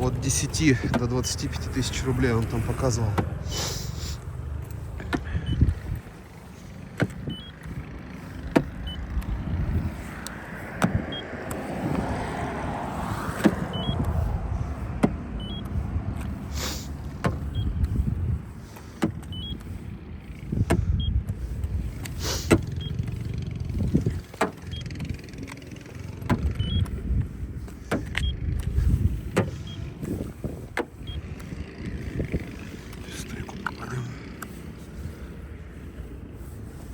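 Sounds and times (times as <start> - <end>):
gauge short high beeps: 7.3 - 7.6, 13.7 - 14.0, 15.4 - 15.7, 19.3 - 19.6, 26.6 - 26.9, 29.5 - 29.9.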